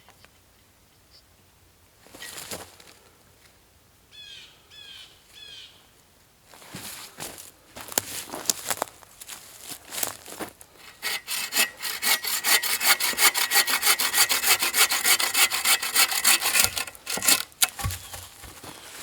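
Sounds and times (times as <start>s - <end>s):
hand saw cutting wood: 10.8s - 18.8s.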